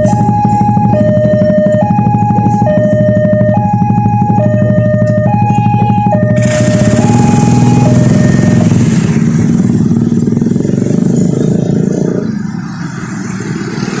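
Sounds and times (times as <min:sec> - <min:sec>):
crossing warning signal: 0:00.0 - 0:09.2
motorcycle engines running: 0:00.0 - 0:14.0.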